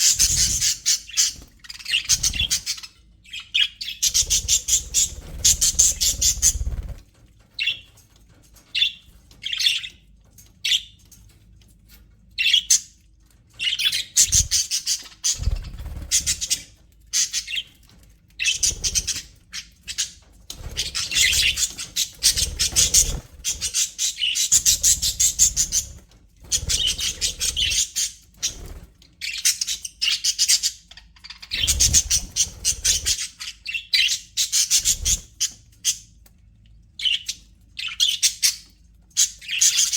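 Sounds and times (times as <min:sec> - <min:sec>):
budgerigars chirping: 0:00.0 - 0:07.0, 0:13.6 - 0:17.7, 0:18.4 - 0:36.0.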